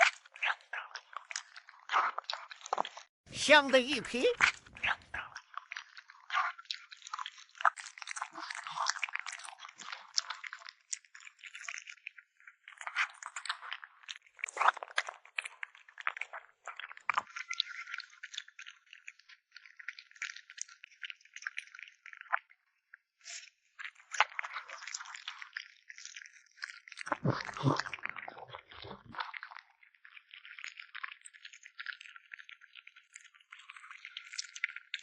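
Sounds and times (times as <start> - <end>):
kitten chewing meat: 3.8 - 22.5, 24.0 - 35.0.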